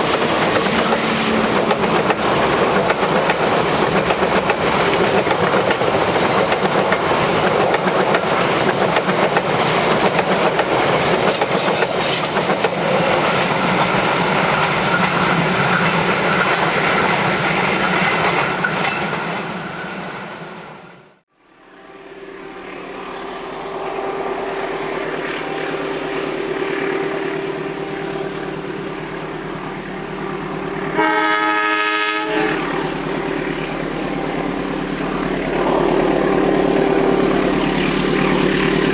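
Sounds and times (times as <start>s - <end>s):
train wheels clacking on rails: 0.0s - 20.9s
diesel locomotive droning: 0.0s - 38.9s
train horn blast: 21.4s - 38.9s.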